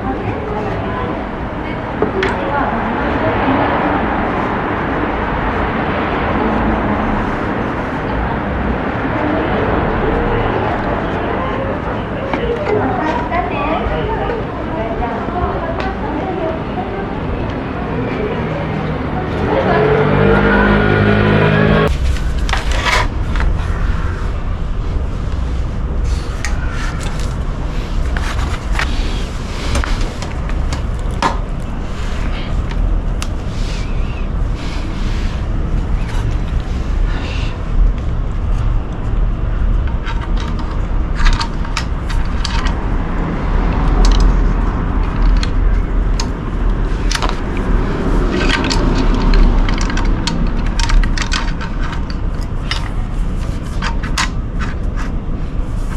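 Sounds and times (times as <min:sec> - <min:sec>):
low rumble: 0:17.6 - 0:55.9.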